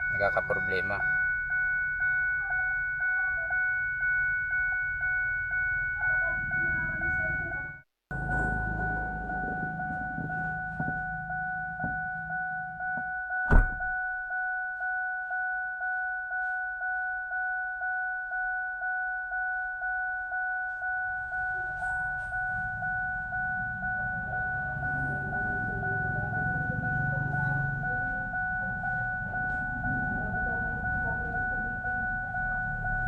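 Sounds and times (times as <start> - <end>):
vehicle warning chime: 0.0 - 33.0
loud thunk: 13.5 - 13.9.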